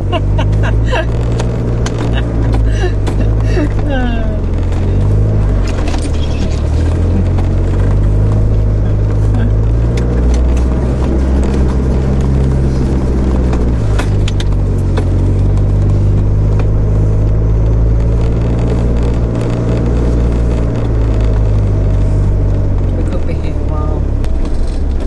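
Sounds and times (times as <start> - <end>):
knocks and rattles: 0.0 - 16.8
vehicle engine running on gravel: 0.0 - 25.0.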